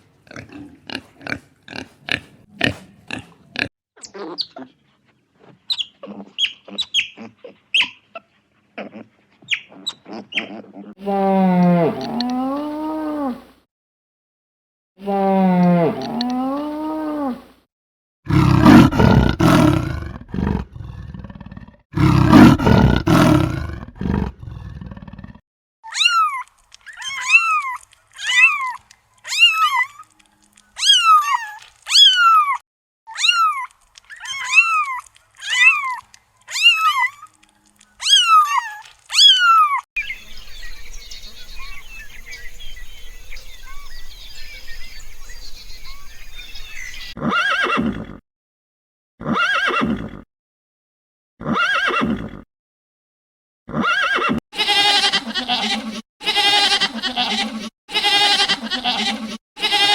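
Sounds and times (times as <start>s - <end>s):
outdoor background noise: 0.0s - 13.6s, 25.9s - 47.2s
animal calls: 5.4s - 11.0s, 25.9s - 47.8s.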